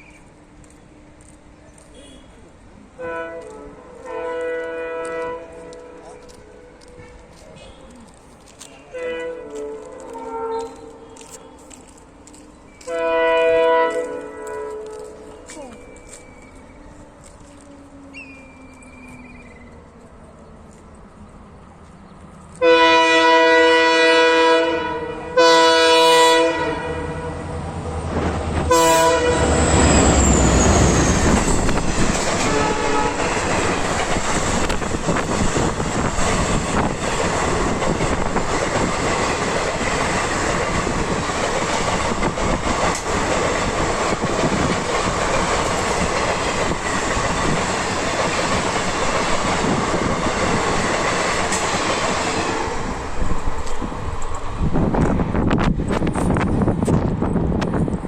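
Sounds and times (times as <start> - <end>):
locomotive horn blasts: 3.0 - 6.8, 8.9 - 11.0, 12.8 - 15.2, 22.6 - 27.5, 28.7 - 29.8, 32.4 - 33.5
train wheels clattering over rails: 28.1 - 58.0.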